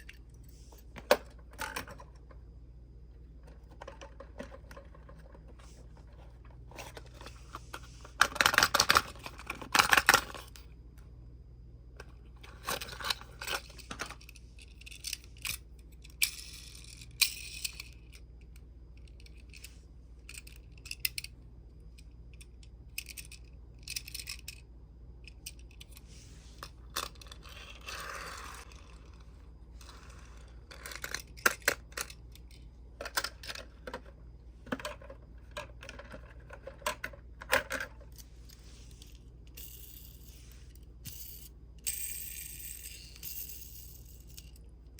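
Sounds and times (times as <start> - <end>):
low steady hum: 0.0 - 44.9
toy cars clicking and rattling: 8.2 - 10.6, 12.4 - 21.3, 21.9 - 24.6, 26.6 - 38.3, 39.0 - 44.7.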